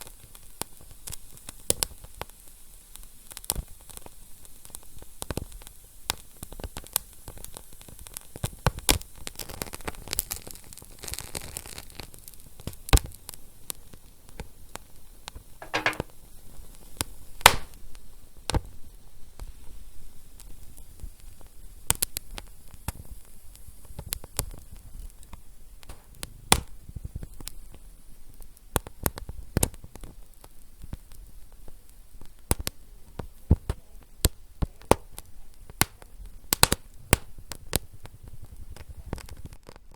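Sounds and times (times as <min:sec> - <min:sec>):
fire crackling and popping: 0:17.0 - 0:18.7, 0:20.2 - 0:39.9.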